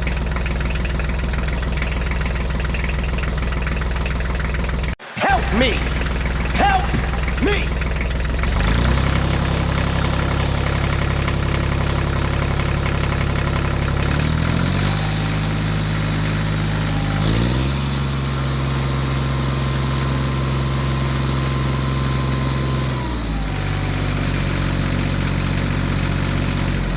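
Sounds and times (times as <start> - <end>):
tractor engine revving: 5.0 - 9.8.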